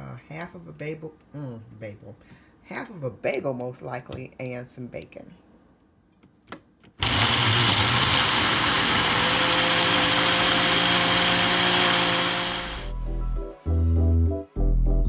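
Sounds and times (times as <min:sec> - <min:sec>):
blender motor whirring: 0:07.0 - 0:12.9.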